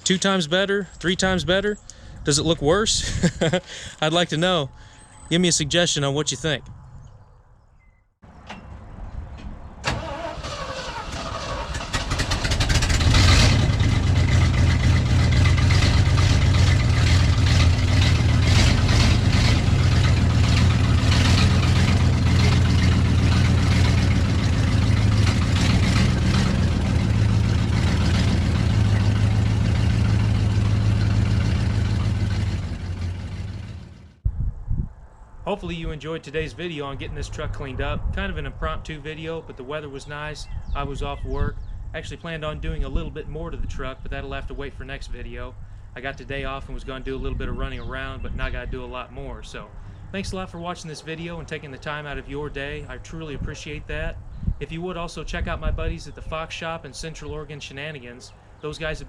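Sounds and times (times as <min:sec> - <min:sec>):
truck engine starting and running: 0:08.2 - 0:34.2.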